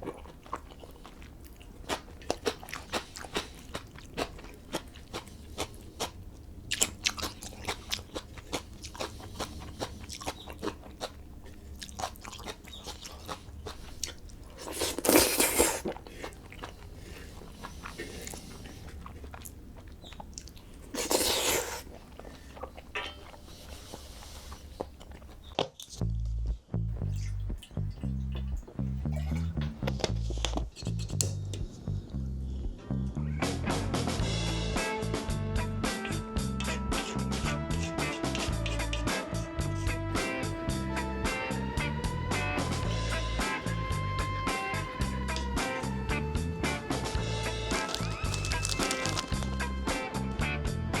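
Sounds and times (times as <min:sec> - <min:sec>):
person chewing and crunching: 0:00.0 - 0:26.2, 0:27.0 - 0:32.2, 0:47.2 - 0:49.7
faint low hum: 0:00.0 - 0:34.5.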